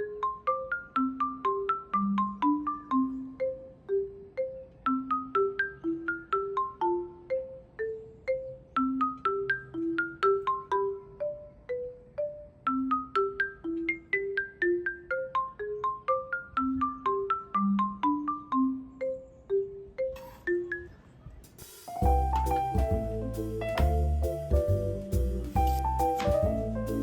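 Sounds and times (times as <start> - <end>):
marimba-like mallet melody: 0.0 - 27.0
plucked bass line: 22.0 - 27.0.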